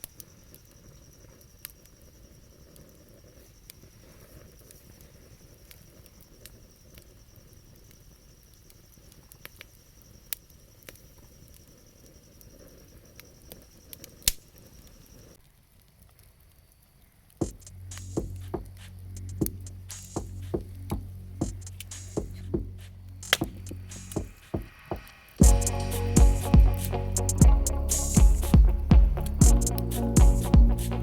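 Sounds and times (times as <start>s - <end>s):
campfire crackling and popping: 0.0s - 31.0s
low steady hiss: 0.0s - 31.0s
high thin tone: 23.3s - 31.0s.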